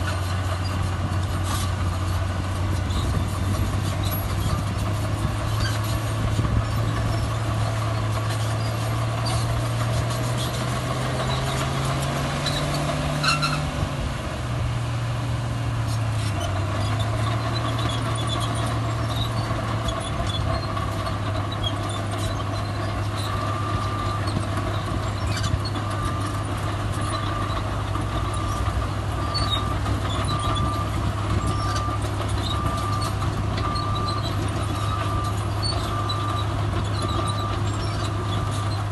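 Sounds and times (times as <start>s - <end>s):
diesel machinery engine running: 0.0s - 38.9s
reversing alarm beeping: 29.2s - 37.7s.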